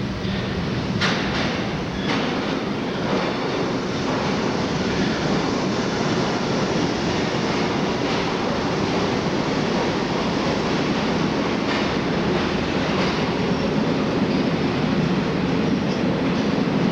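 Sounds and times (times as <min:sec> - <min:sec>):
work train rumbling on tracks: 0:00.0 - 0:16.9.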